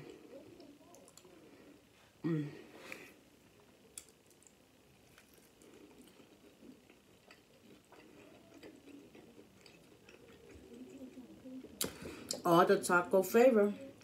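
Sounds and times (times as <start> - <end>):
faint chewing: 0.0 - 1.8, 3.8 - 12.5.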